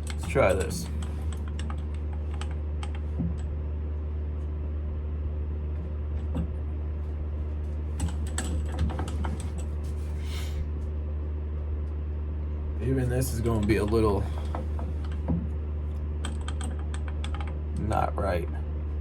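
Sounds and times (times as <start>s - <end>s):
lathe humming: 0.0s - 3.6s.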